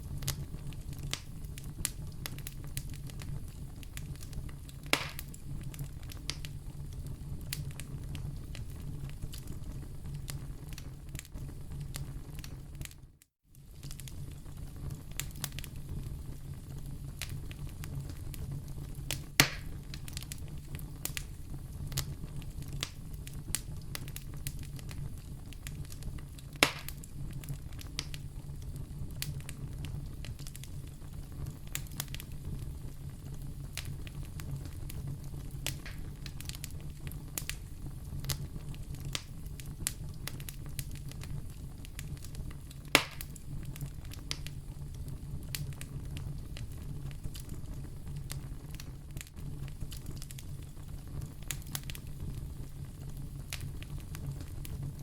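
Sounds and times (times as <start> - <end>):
fire popping: 0.0 - 55.0
wood fire crackling: 0.0 - 55.0.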